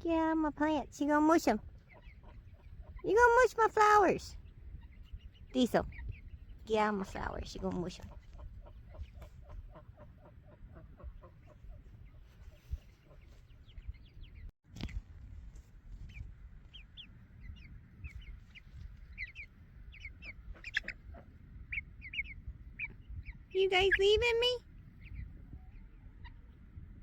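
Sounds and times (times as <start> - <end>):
chicks peeping: 0.6 - 15.0, 15.9 - 26.9
chickens clucking: 1.4 - 14.5, 16.0 - 24.2.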